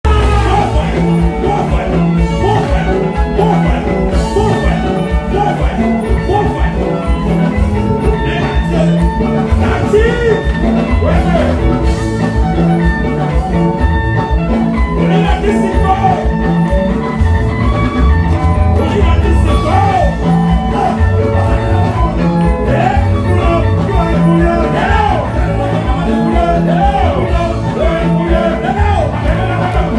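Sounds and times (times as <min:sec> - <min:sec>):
music with bass beat: 0:00.0 - 0:29.9
pitch-bending melody line: 0:00.0 - 0:29.9.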